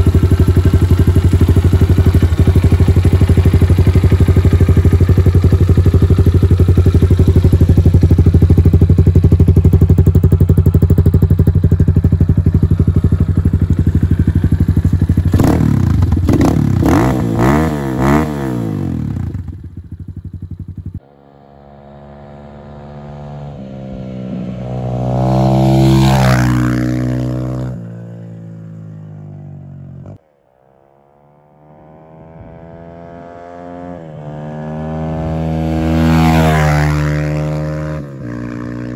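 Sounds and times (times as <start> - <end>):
motorbike engine revving: 0.0 - 29.1, 31.2 - 38.9
motorbike riding past: 20.9 - 38.9.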